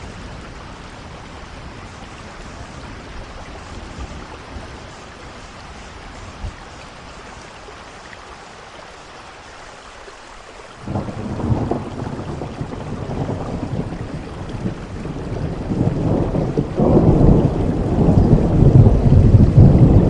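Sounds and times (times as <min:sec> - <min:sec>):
steady rainfall: 0:00.0 - 0:20.0
thunder rolling: 0:10.8 - 0:20.0.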